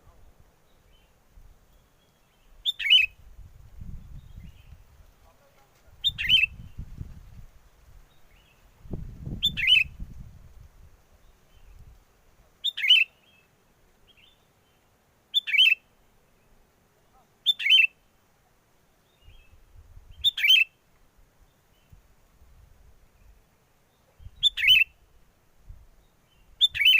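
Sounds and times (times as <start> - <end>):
wind rumble on microphone: 3.1 - 5.2, 5.8 - 12.0, 19.2 - 20.3, 24.2 - 24.7, 25.6 - 26.9.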